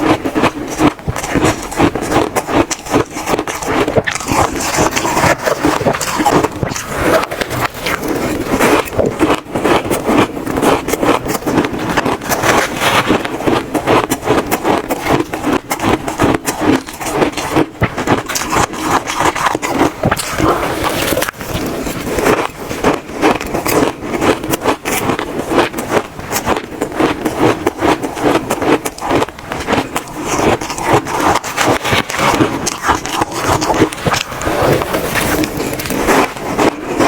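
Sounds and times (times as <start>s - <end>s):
chewing crunchy ice: 0.0s - 37.0s.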